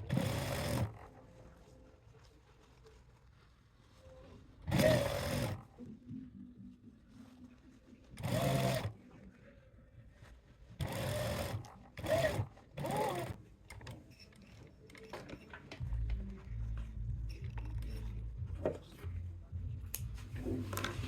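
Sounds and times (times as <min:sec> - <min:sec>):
sewing machine running: 0:00.0 - 0:01.0, 0:04.7 - 0:05.6, 0:08.2 - 0:08.9, 0:10.8 - 0:13.4.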